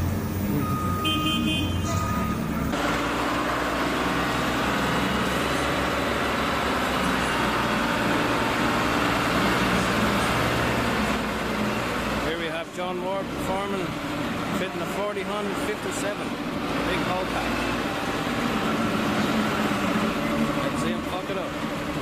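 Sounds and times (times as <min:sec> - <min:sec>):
diesel engine running: 0:00.0 - 0:22.0
reversing alarm beeping: 0:00.4 - 0:02.8.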